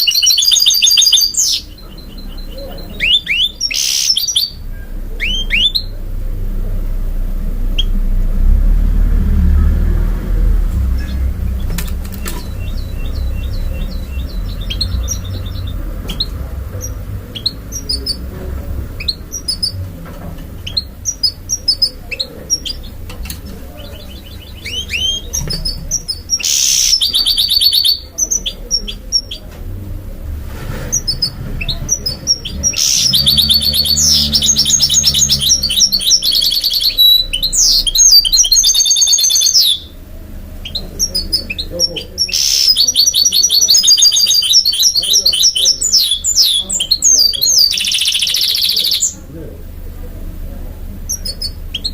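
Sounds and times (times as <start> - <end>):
songbirds chirping and trilling: 0.0 - 51.9
low rumble: 4.5 - 26.4.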